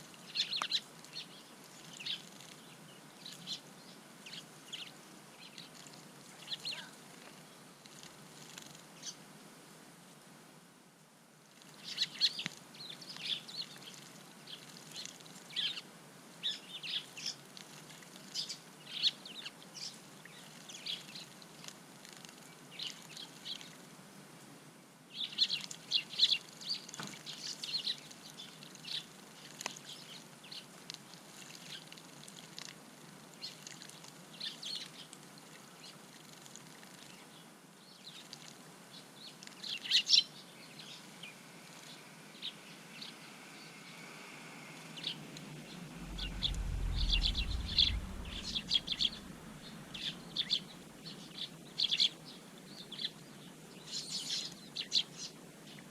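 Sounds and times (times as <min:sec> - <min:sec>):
sparrows chirping: 0:00.3 - 0:05.7, 0:06.4 - 0:06.9, 0:11.8 - 0:15.8.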